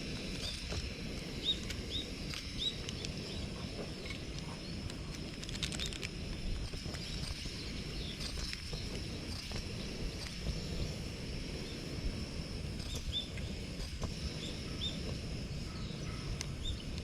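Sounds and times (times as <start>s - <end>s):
cluster of clicks: 0.1s - 10.4s
bird chirps: 1.4s - 4.8s, 14.4s - 15.0s.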